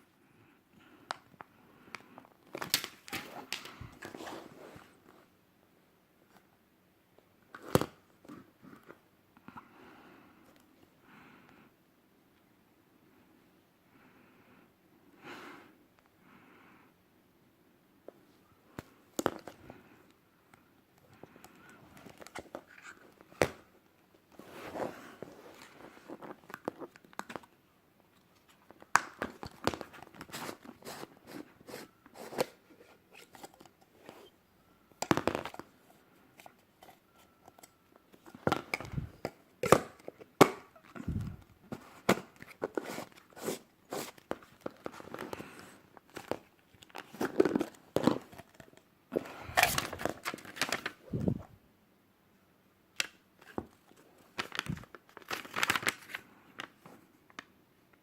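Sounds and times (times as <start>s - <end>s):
packaging crinkling and tearing: 49.4s - 51.0s, 53.0s - 56.8s.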